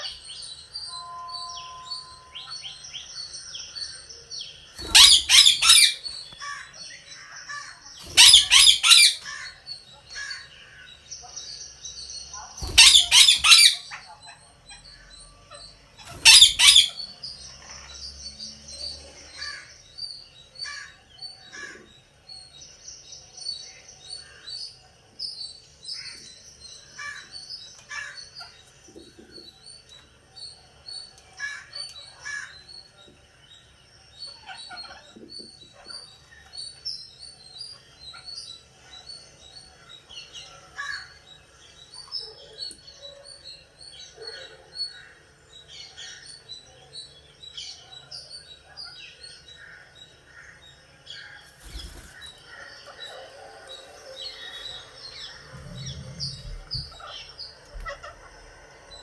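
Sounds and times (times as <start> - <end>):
birds chirping: 0.0 - 59.0
loud bird shriek: 4.8 - 6.6, 8.0 - 9.6, 12.6 - 14.0, 16.0 - 17.2.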